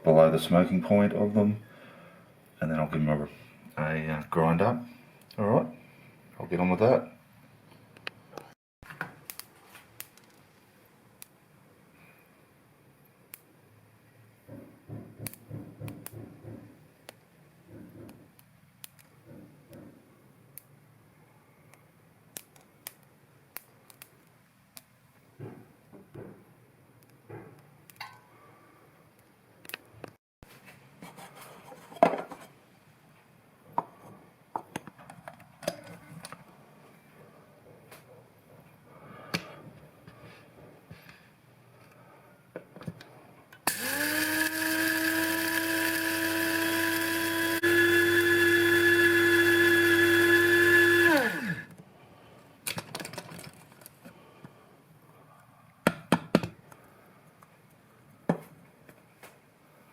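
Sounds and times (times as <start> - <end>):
electric spice grinder whirring: 43.6 - 51.7.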